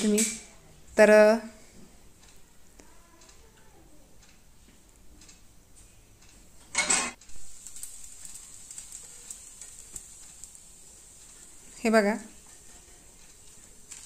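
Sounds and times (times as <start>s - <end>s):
faint sizzling on a hot pan: 6.6s - 14.0s.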